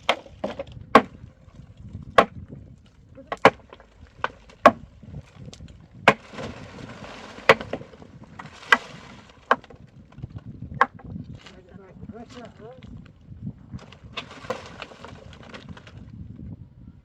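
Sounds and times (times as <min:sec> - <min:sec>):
wood being struck: 0:00.0 - 0:01.3, 0:02.1 - 0:09.8, 0:10.7 - 0:11.1.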